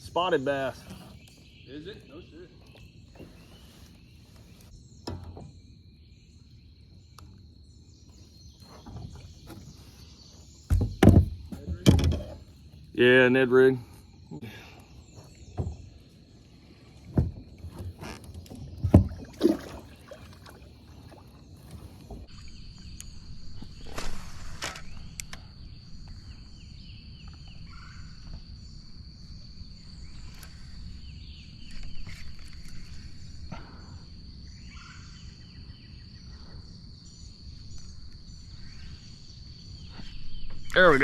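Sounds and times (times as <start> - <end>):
knocks against kayak hull: 10.7 - 12.5, 17.1 - 19.9
low water noise: 15.2 - 24.5.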